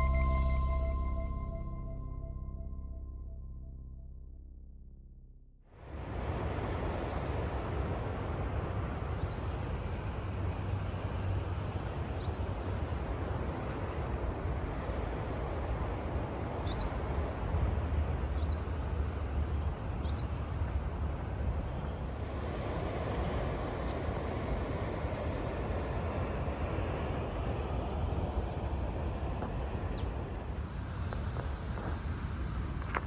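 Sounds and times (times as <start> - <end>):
short high bird chirps: 0.0 - 3.0
wind: 0.0 - 33.0
sea: 5.8 - 33.0.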